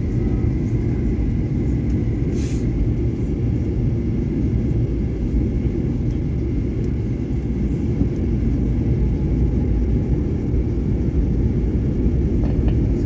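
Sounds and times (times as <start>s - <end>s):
airliner cabin engine roar: 0.0s - 13.0s.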